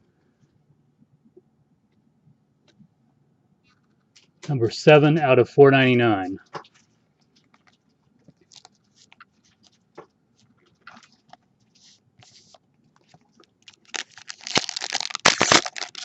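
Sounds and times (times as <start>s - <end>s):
foil wrapper crinkling: 7.5s - 9.8s, 12.3s - 16.0s
cards clicking and rustling: 12.2s - 16.0s.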